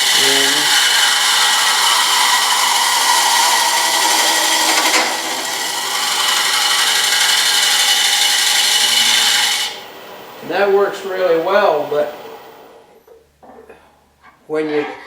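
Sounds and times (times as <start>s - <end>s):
cutter scraping spinning wood: 0.0s - 9.9s
wood lathe running: 0.0s - 9.9s.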